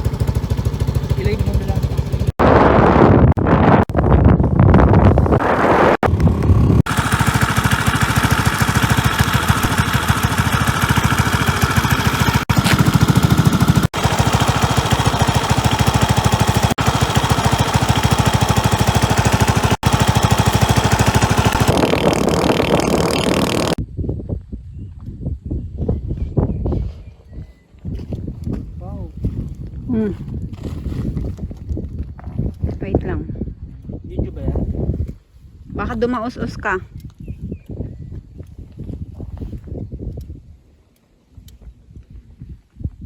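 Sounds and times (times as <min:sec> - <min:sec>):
scooter engine running: 0:00.0 - 0:03.3, 0:05.0 - 0:23.8.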